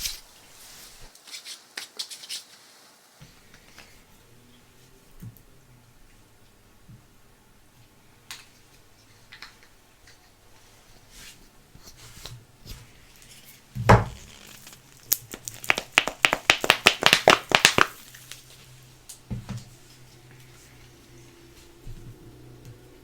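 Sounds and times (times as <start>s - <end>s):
thump: 13.8s - 14.2s
packaging crackling: 14.1s - 18.6s.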